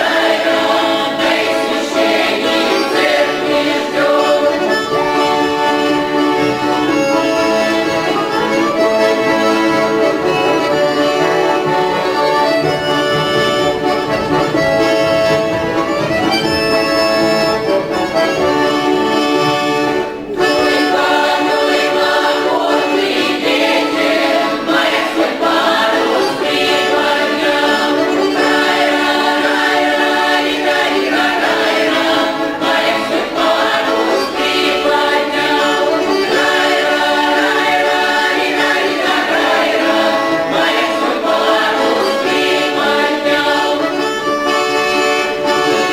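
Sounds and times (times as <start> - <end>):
accordion playing folk tune: 0.0 - 45.9
folk choir singing: 0.0 - 45.9.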